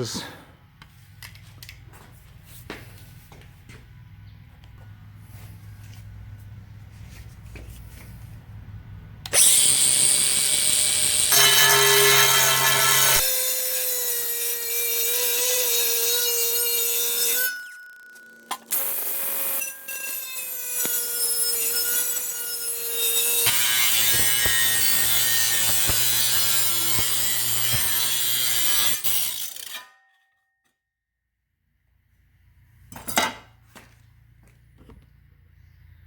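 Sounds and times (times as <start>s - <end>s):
power saw cutting metal sheet: 9.3s - 30.0s.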